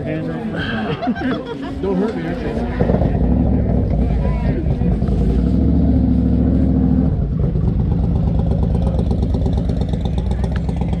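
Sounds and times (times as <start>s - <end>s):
engine running: 2.3s - 11.0s.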